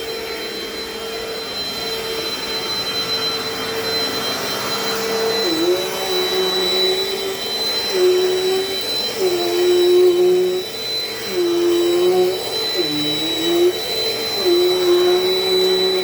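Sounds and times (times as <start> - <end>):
vacuum cleaner motor whine: 0.0 - 16.0.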